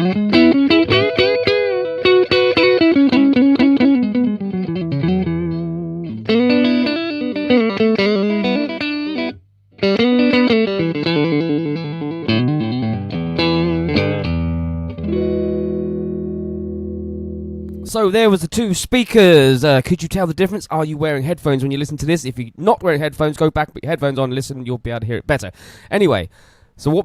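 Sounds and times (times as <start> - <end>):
clean electric guitar: 0.0 - 17.9.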